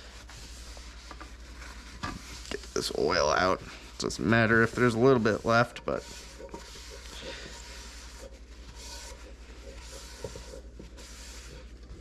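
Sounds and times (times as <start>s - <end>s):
scraping at a cooking pot: 0.0s - 12.0s.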